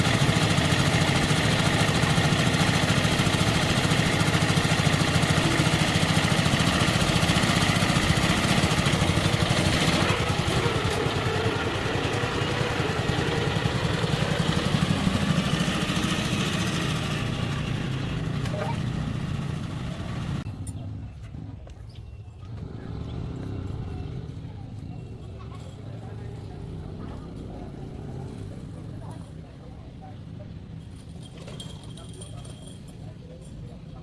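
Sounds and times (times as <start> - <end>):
old tractor engine running: 0.0 - 21.2.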